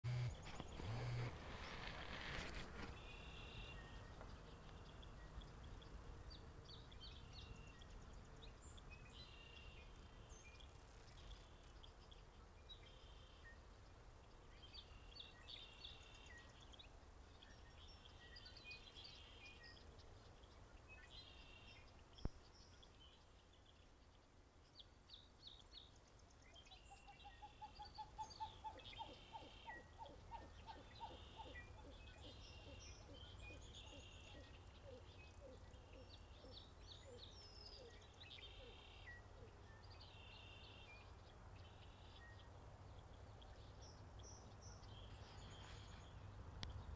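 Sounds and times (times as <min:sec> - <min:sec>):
fast lower bird calls: 0:26.8 - 0:39.6.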